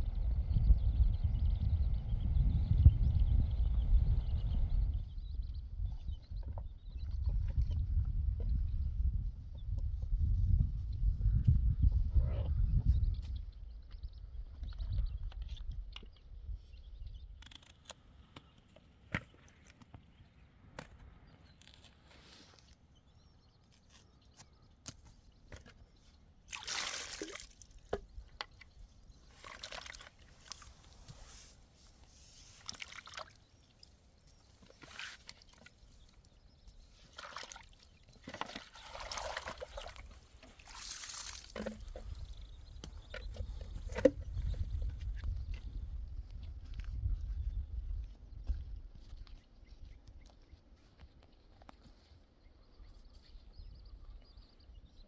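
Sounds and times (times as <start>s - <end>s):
water sloshing and trickling: 26.5s - 31.4s, 32.4s - 34.0s, 37.0s - 42.4s.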